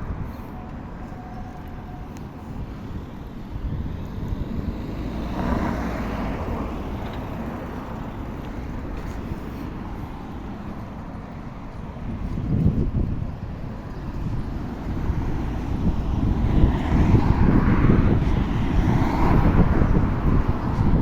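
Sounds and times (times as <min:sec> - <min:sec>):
wind and road rumble: 0:00.0 - 0:21.0
vehicle passing: 0:03.8 - 0:12.6, 0:13.7 - 0:21.0.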